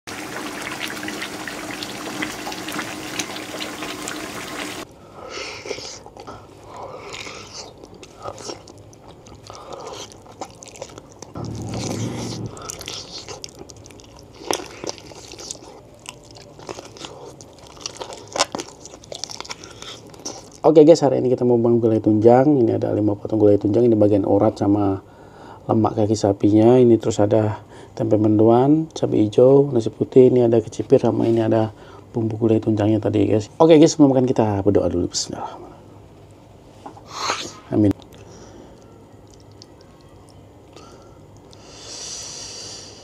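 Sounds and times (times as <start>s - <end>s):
sauce bubbling in a pan: 0.1s - 4.9s
wet biting and chewing: 5.5s - 20.7s, 38.8s - 41.6s.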